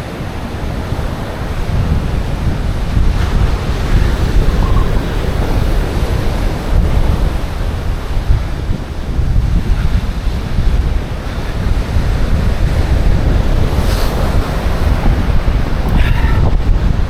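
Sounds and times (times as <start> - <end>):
sea waves breaking on beach: 0.0 - 17.0
wind buffeting microphone: 0.0 - 17.0.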